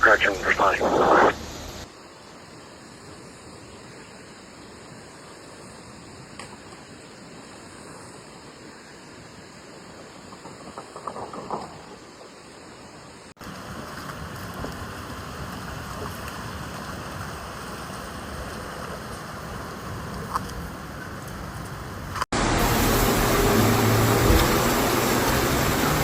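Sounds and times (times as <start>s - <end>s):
sharp crackles: 10.3s - 12.1s
floodwater rushing: 13.4s - 26.0s.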